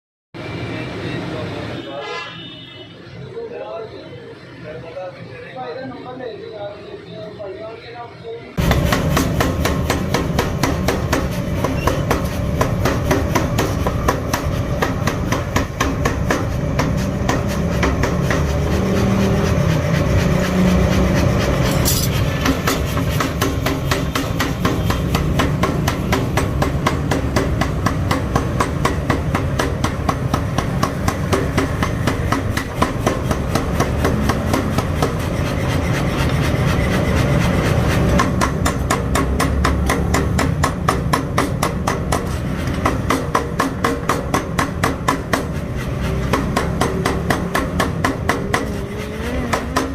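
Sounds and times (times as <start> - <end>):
power hammer striking steel: 8.6 - 18.8, 21.6 - 36.0, 38.1 - 49.9.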